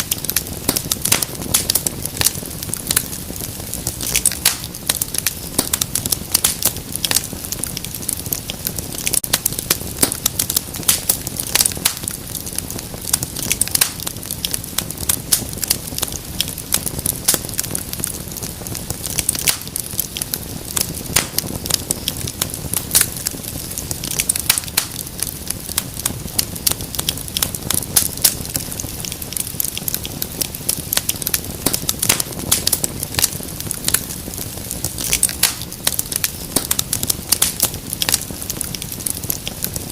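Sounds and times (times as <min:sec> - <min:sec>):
low rumble of flames: 0:00.0 - 0:39.9
wood fire pops and snaps: 0:00.0 - 0:39.9.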